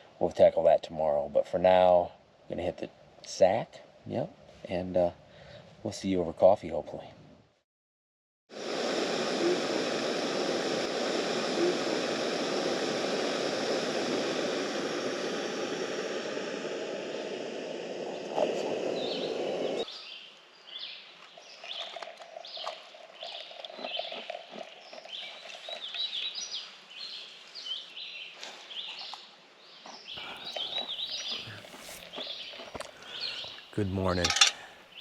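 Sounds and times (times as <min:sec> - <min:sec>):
steady rushing noise: 0:08.6 - 0:19.8
birds chirping: 0:18.1 - 0:24.1, 0:24.8 - 0:35.0.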